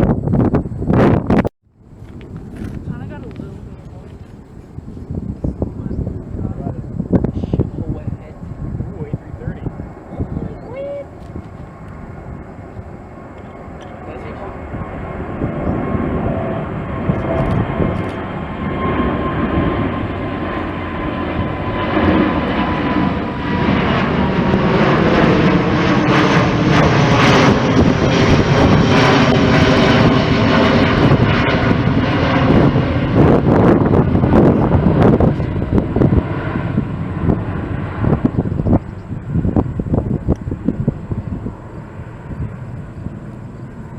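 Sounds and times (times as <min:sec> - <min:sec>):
jet airliner passing: 0:00.0 - 0:43.9.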